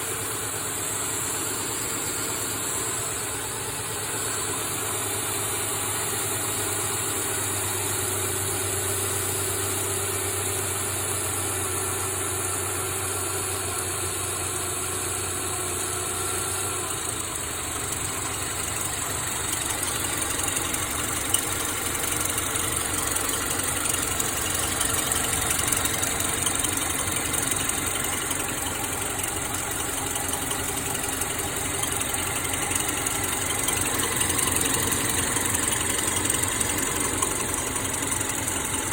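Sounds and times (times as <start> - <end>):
car engine idling: 0.0 - 38.9
chirping under engine idle: 16.9 - 38.9.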